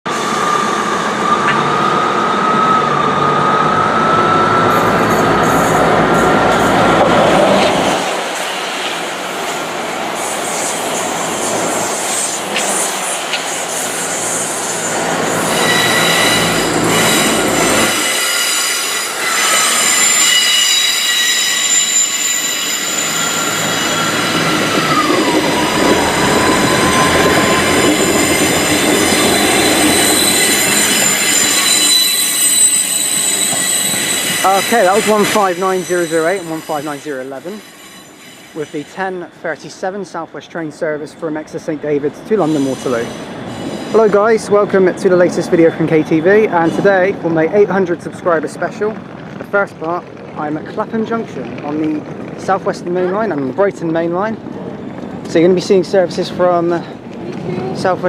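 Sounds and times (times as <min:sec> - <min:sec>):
train rumble: 0:00.4 - 0:58.0
train wheels squealing: 0:10.2 - 0:48.6.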